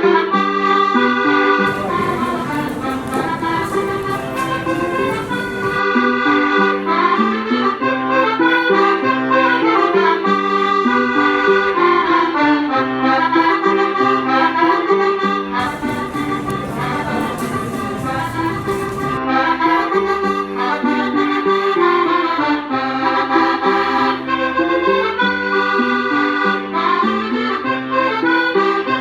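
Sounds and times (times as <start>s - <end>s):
accordion melody: 0.0s - 29.0s.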